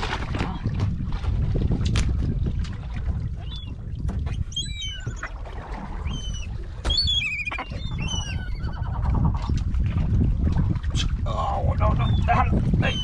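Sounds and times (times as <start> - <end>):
boat engine rumble: 0.0 - 13.0
wind: 0.0 - 13.0
birds calling: 6.0 - 9.0, 11.8 - 13.0.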